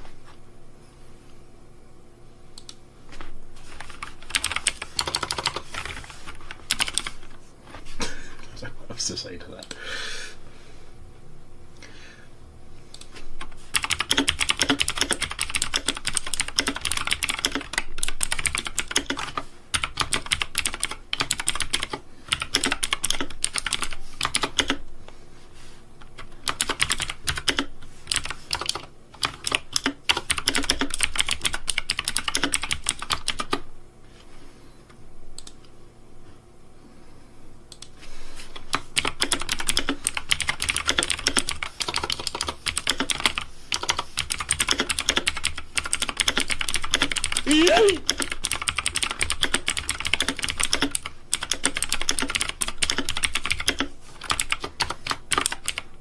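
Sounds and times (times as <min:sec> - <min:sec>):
fast typing on keyboard: 0:03.7 - 0:07.3, 0:13.4 - 0:24.8, 0:26.0 - 0:33.6, 0:38.6 - 0:55.9.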